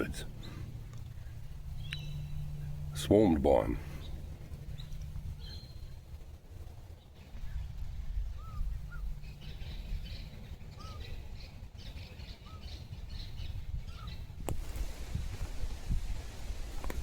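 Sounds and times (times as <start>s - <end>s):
whistled bird notes: 1.8s - 2.7s, 7.5s - 14.2s.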